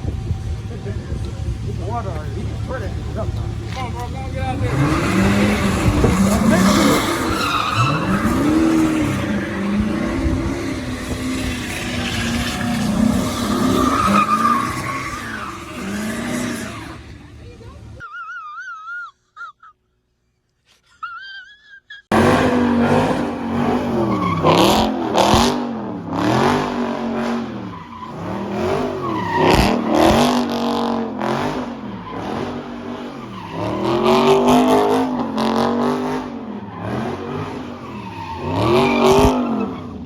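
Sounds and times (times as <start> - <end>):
car engine revving: 0.0 - 18.0, 22.1 - 40.0
tyre squeal: 3.7 - 17.2.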